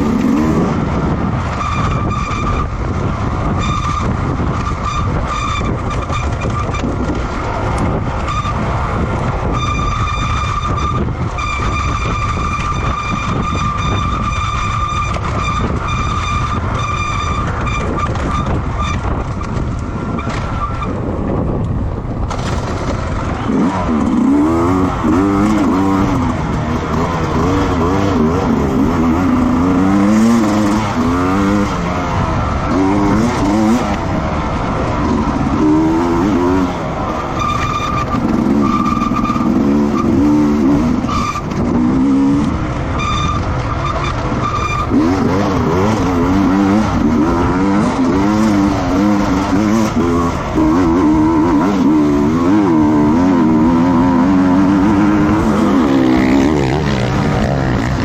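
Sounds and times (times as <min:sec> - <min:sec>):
racing motorcycle engines: 0:00.0 - 0:58.0.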